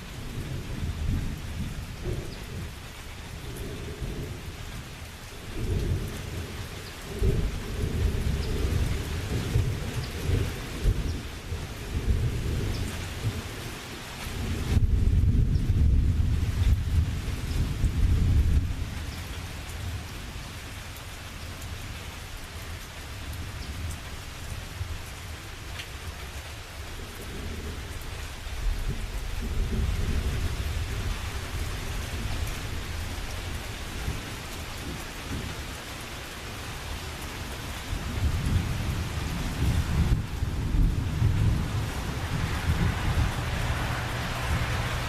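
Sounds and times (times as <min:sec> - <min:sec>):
low rolling thunder: 0:00.0 - 0:20.6, 0:26.9 - 0:35.9, 0:36.6 - 0:45.0
steady rain: 0:00.0 - 0:45.0.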